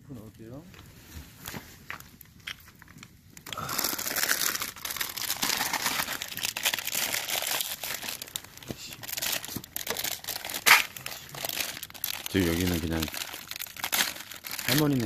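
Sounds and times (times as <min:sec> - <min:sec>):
plastic packaging crinkling: 0:01.3 - 0:15.0
plastic tearing crack: 0:02.4 - 0:15.0.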